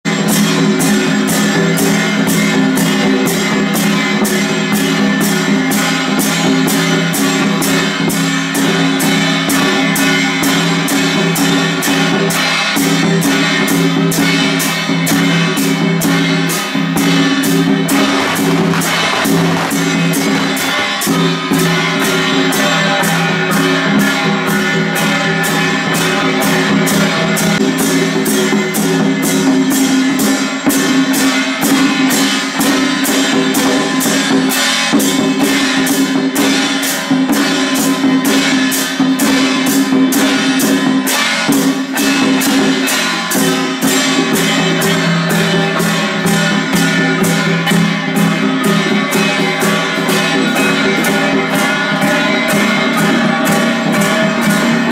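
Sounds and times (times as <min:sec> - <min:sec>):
drum playing steady beat: 0:00.1 - 0:54.9
loud backing music: 0:17.0 - 0:23.5.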